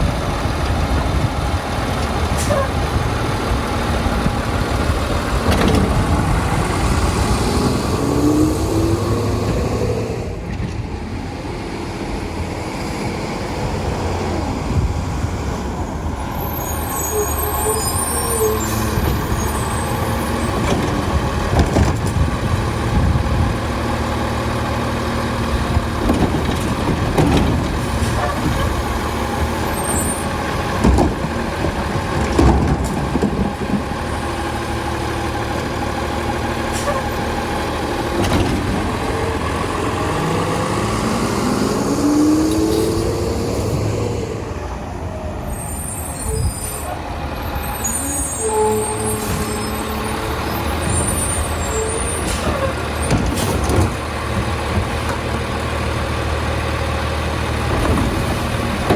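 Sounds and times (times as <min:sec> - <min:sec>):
garbage truck running: 0:00.0 - 0:58.9
sharp knocks and clanks: 0:25.7 - 0:28.9, 0:30.7 - 0:34.0.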